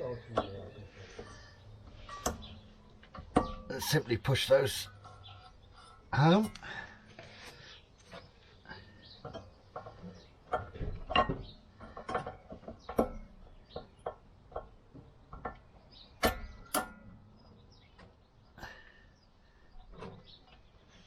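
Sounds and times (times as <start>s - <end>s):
sharp metal clanks: 2.0s - 5.3s, 16.2s - 17.6s.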